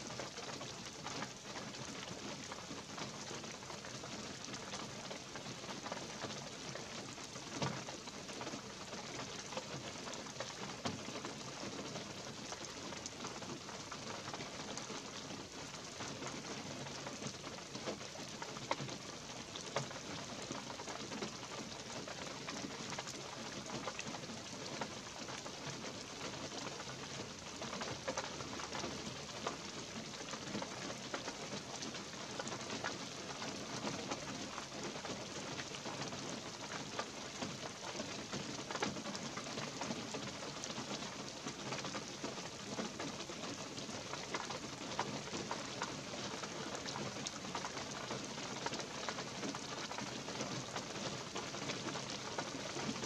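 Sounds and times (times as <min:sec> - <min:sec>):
light rain pattering on trees: 0:00.0 - 0:53.0.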